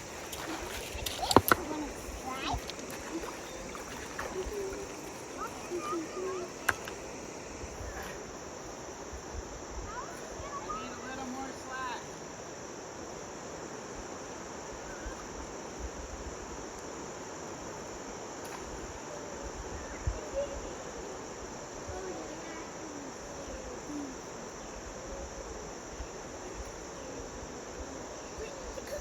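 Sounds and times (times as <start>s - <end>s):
faint distant voices: 0.0s - 12.4s, 18.6s - 29.0s
insects chirping: 0.0s - 29.0s.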